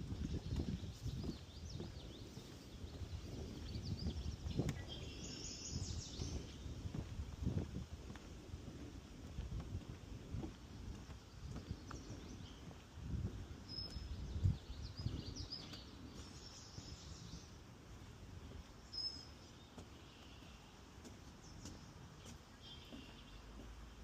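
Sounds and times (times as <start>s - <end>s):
footsteps on wooden boardwalk: 0.0s - 24.0s
birds chirping and trilling: 0.1s - 6.9s, 11.3s - 12.8s, 13.6s - 17.6s.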